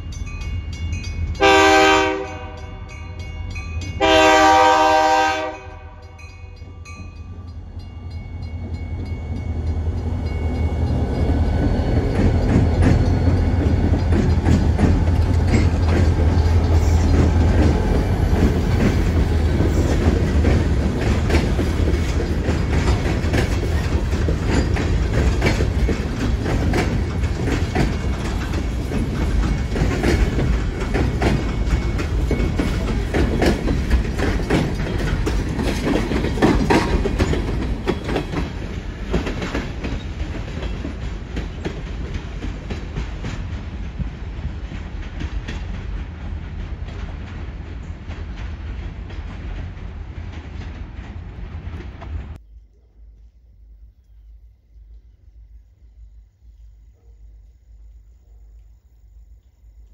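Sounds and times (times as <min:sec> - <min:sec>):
freight train rumble: 0:00.0 - 0:52.5
wheels clacking over rail joints: 0:08.1 - 0:52.4.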